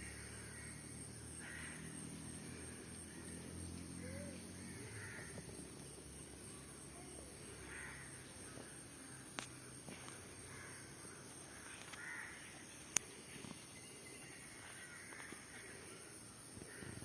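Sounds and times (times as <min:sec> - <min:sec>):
crows cawing faintly: 0:00.0 - 0:05.8, 0:07.5 - 0:13.4, 0:14.2 - 0:17.0.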